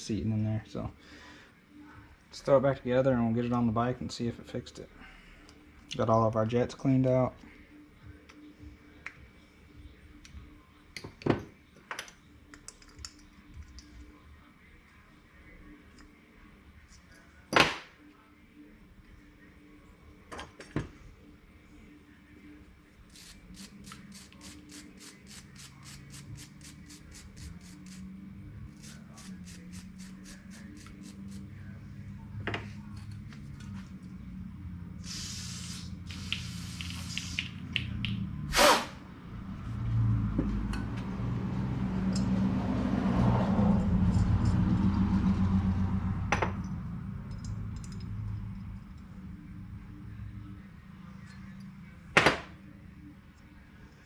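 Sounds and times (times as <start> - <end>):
spray hiss: 35.0 - 37.6.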